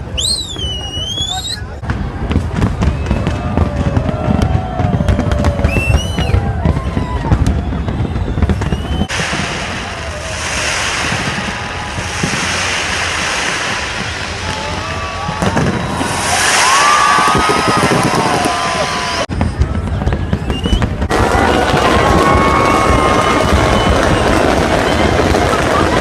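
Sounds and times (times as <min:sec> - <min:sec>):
fireworks popping and banging: 0:00.0 - 0:26.0
steady rushing hiss: 0:09.1 - 0:18.0.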